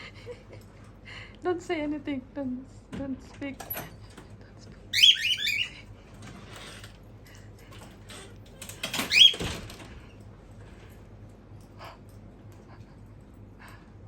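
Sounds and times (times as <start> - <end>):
cockatiel chicks chirping: 5.0 - 5.8, 9.0 - 9.5.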